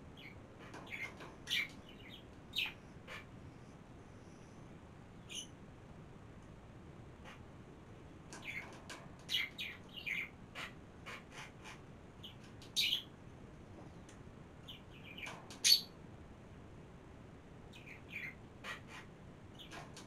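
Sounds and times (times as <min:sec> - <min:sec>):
small birds chirping: 0:00.0 - 0:03.3, 0:05.1 - 0:05.6, 0:08.1 - 0:13.2, 0:13.9 - 0:16.0, 0:17.7 - 0:20.0.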